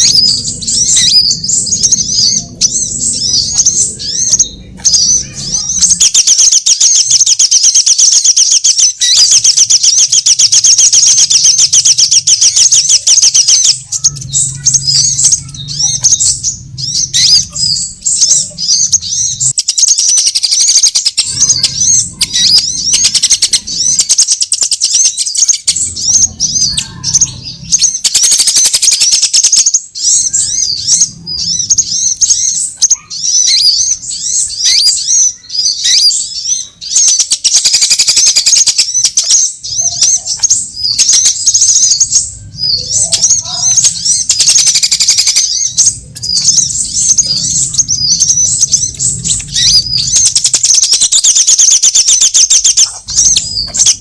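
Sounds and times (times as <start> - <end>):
low rumble: 0.0 - 6.0, 13.6 - 19.6, 30.0 - 32.8, 45.4 - 50.6
high-pitched bird chirping: 0.0 - 54.0.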